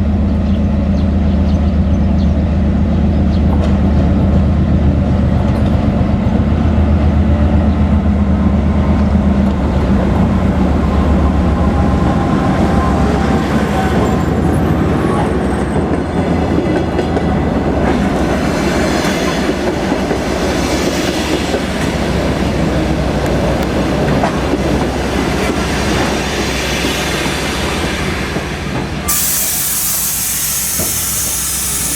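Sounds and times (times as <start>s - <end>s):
diesel locomotive engine: 0.0s - 31.9s
air hiss: 29.1s - 31.9s.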